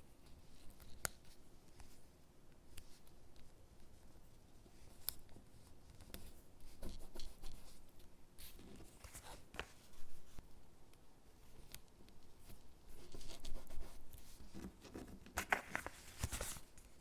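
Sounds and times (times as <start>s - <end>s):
paper and stickers handled: 8.4s - 10.4s, 11.5s - 17.0s.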